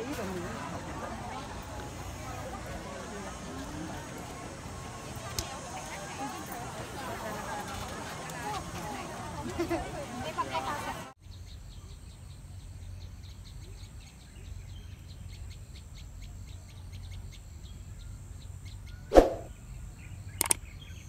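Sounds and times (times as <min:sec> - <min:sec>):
quick clicks: 0:20.4 - 0:20.6.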